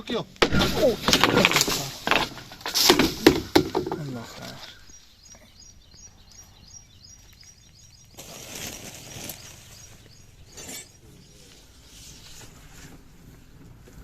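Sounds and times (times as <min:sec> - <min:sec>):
small bird chirping: 0:03.9 - 0:13.4.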